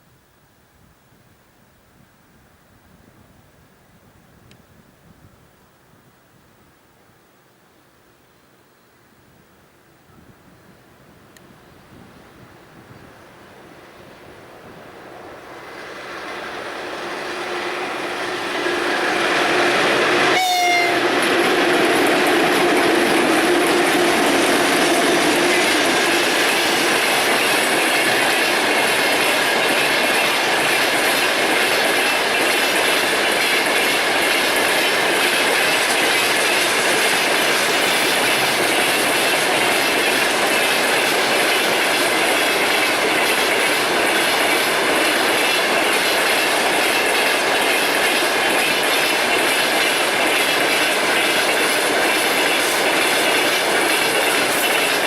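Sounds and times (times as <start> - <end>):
freight train wheels clattering: 13.8 - 55.0.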